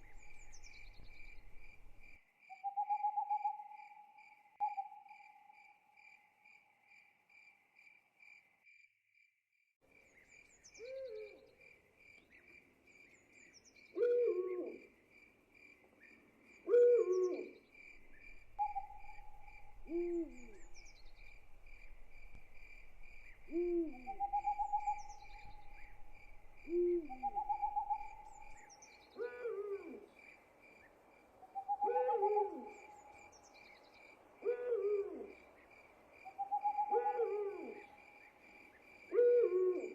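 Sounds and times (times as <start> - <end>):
crickets chirping: 0.0 - 8.9, 14.3 - 39.9
owl hooting: 14.0 - 14.8, 16.7 - 17.6, 18.2 - 21.5, 23.2 - 30.1, 31.5 - 33.3, 34.4 - 35.4, 36.3 - 38.0, 39.1 - 39.9.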